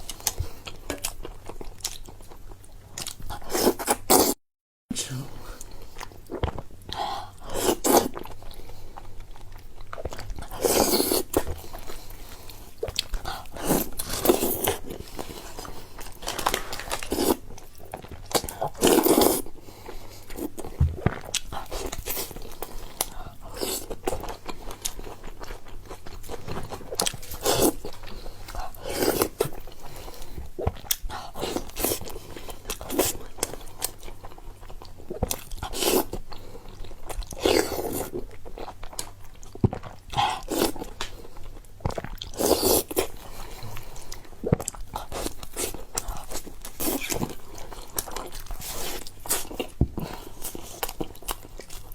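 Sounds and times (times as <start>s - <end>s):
person chewing crunchy food: 0.0s - 4.4s, 5.6s - 51.9s.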